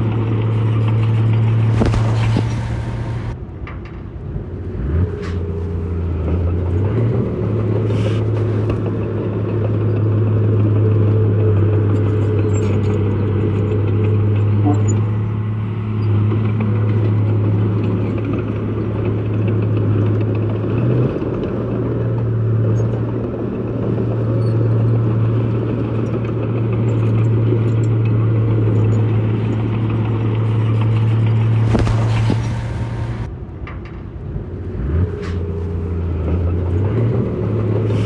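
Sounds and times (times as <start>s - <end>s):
diesel engine running: 0.0s - 3.4s, 4.3s - 33.3s, 34.6s - 38.0s
brief rush of noise: 1.7s - 3.4s, 31.7s - 33.3s.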